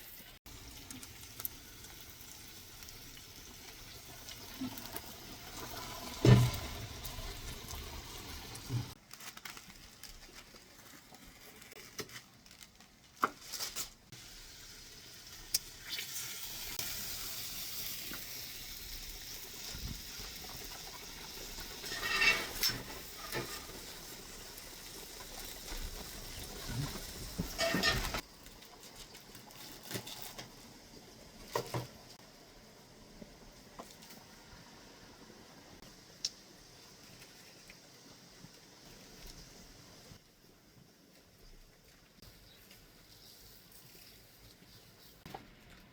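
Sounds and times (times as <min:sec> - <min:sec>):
meat sizzling over fire: 0:00.0 - 0:12.6, 0:13.4 - 0:45.3
fire crackles and knocks: 0:04.3 - 0:13.5, 0:19.6 - 0:30.7.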